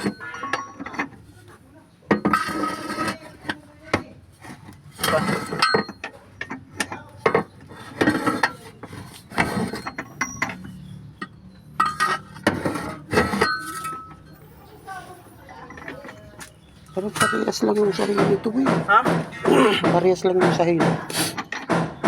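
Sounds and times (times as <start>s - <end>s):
metal engine parts clinking: 0.0s - 1.3s, 2.1s - 3.6s, 4.4s - 18.6s
short metallic rings: 9.5s - 16.1s.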